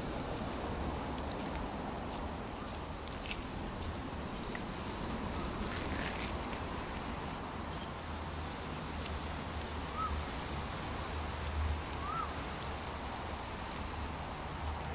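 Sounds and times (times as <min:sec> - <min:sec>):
short arched bird calls: 0:12.0 - 0:12.3.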